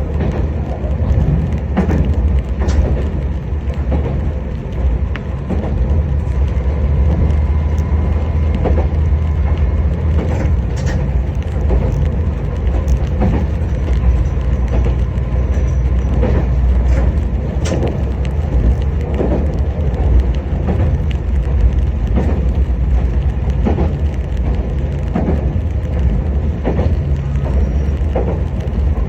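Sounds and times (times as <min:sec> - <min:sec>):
railcar engine hum: 0:00.0 - 0:29.0
wheels clicking on track: 0:00.0 - 0:29.0.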